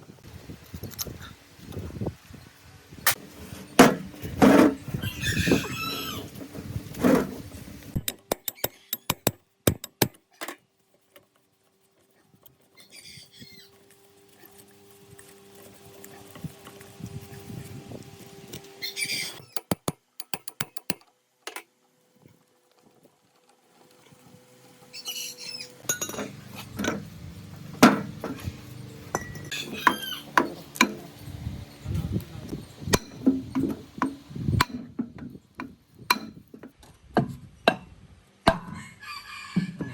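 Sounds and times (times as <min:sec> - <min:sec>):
bird chirping: 0:24.9 - 0:25.8
sharp knocks and clinks: 0:25.8 - 0:27.0, 0:29.1 - 0:31.2, 0:32.9 - 0:36.7.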